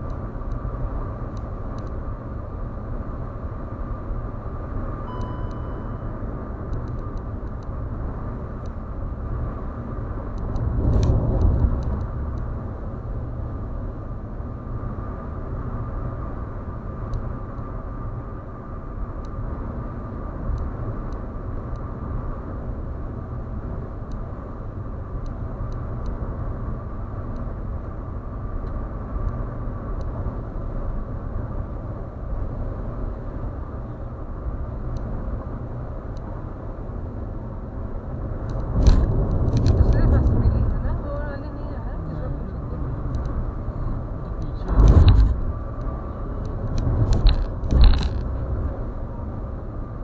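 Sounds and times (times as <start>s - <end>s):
road and tyre rumble: 0.0s - 50.0s.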